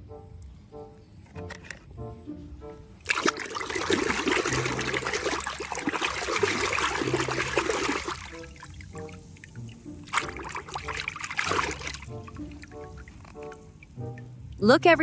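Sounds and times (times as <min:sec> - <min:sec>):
running water rinsing: 0:03.0 - 0:14.7.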